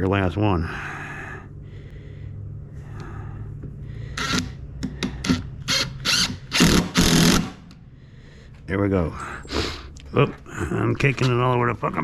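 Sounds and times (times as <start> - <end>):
power driver driving screw into wood: 4.2 - 7.8.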